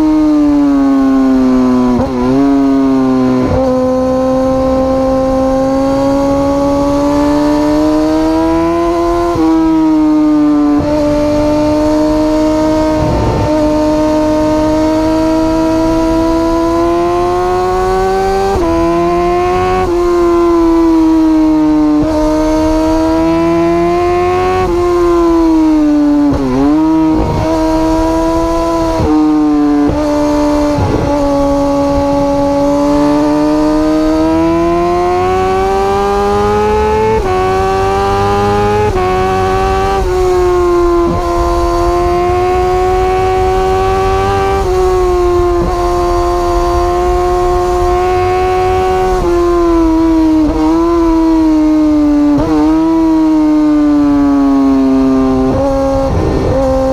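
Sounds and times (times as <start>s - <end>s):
motorcycle engine at high revs: 0.0s - 56.9s.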